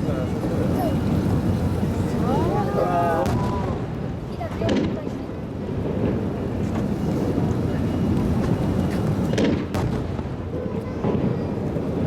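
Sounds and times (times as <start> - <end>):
fireworks bangs: 3.2 - 7.5, 8.5 - 12.0.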